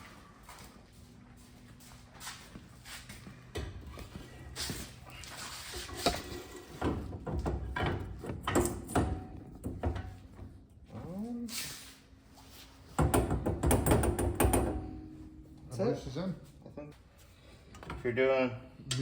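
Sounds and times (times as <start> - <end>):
metal clunks and knocks: 6.0 - 10.5, 13.0 - 15.4.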